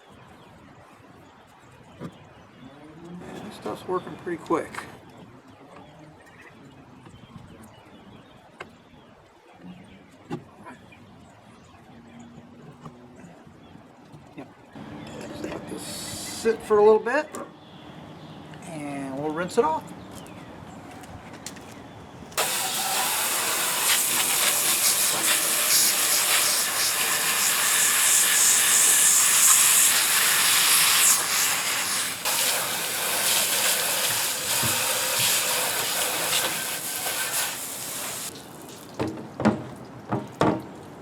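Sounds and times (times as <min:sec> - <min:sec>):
hose spraying water on metal: 0:22.4 - 0:39.0.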